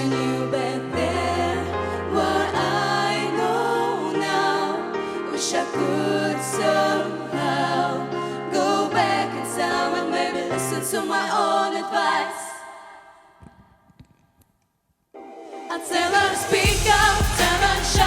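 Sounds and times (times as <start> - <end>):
young voices singing pop ballad: 0.0 - 13.3, 15.5 - 18.0
backing track bass and chords: 16.6 - 18.0.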